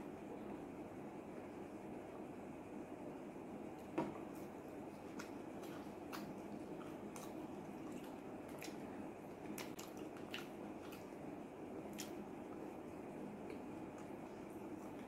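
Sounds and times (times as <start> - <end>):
steady low hum: 0.0 - 15.0
chewing fries: 4.3 - 15.0.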